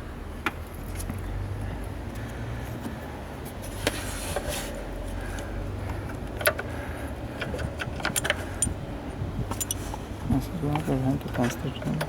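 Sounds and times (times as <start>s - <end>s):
metallic tool clicks and knocks: 9.5s - 9.8s.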